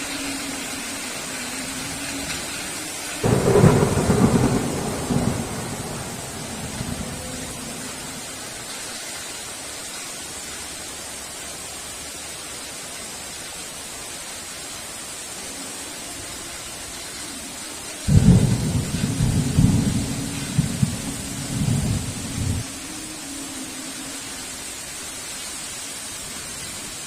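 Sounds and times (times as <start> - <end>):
heavy rain: 0.0 - 27.0
thunder rumbling: 3.2 - 8.6, 18.1 - 22.7.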